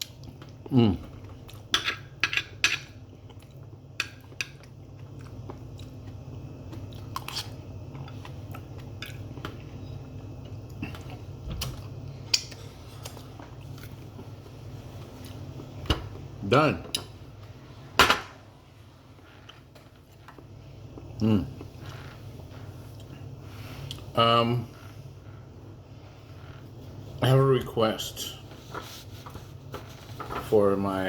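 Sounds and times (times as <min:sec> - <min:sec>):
person chewing food: 0:00.0 - 0:14.3
steady low hum: 0:00.0 - 0:31.0.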